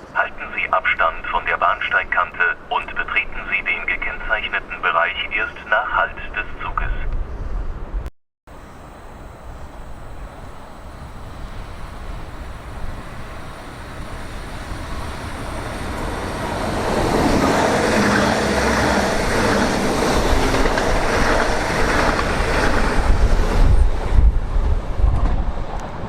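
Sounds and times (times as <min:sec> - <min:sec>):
train passing: 0:00.0 - 0:26.0.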